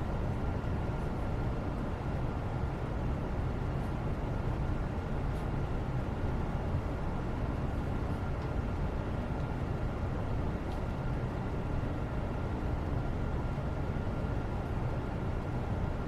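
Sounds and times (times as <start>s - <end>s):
faint light ticks: 8.0s - 8.6s, 9.4s - 9.6s.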